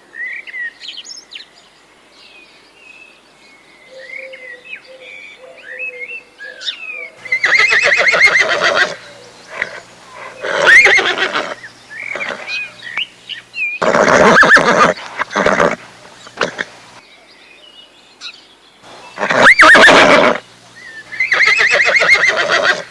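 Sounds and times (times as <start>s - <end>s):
bird chirps: 3.7s - 8.0s
horse whinnying: 7.3s - 12.6s, 13.8s - 16.7s, 19.1s - 20.4s, 21.2s - 22.9s.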